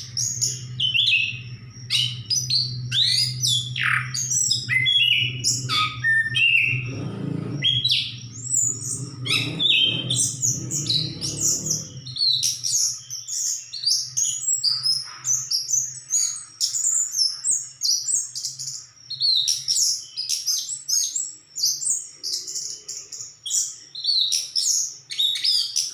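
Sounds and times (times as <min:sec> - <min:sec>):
low steady hum: 0:00.0 - 0:12.5
thrush singing varied trills: 0:00.0 - 0:25.9.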